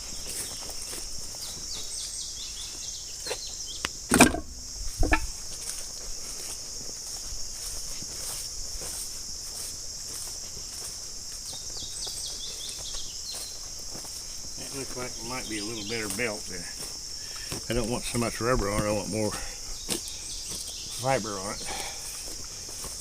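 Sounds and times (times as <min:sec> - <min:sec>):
crickets chirring: 0:00.0 - 0:23.0
heavy thumps: 0:04.1 - 0:05.4.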